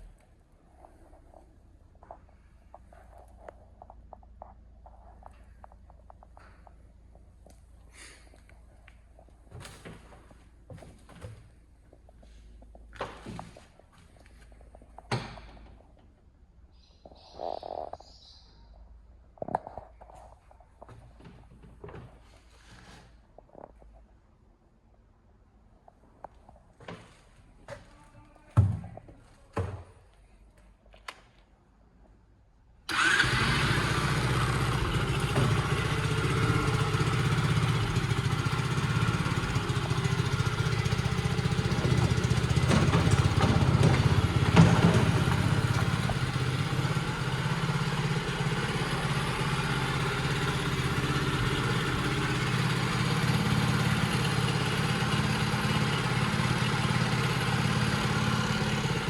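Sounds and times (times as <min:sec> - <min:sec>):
motorbike engine running: 0:32.9 - 0:59.0.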